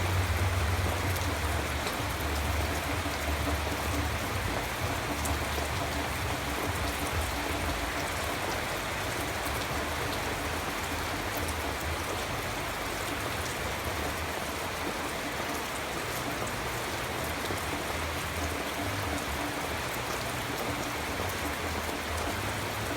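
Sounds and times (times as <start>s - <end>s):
rain drops ticking: 0.0s - 22.9s
steady rainfall: 0.0s - 22.9s.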